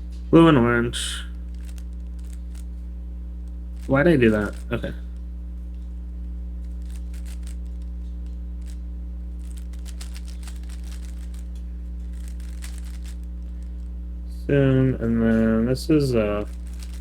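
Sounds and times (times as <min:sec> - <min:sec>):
low electrical hum: 0:00.0 - 0:17.0
plastic puzzle cube clicking: 0:06.8 - 0:07.8, 0:09.4 - 0:11.5, 0:12.1 - 0:13.3.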